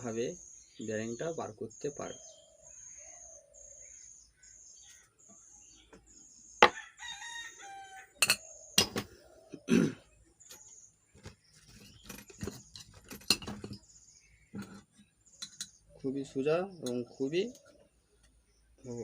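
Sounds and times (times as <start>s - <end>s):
rooster crowing: 6.7s - 8.2s.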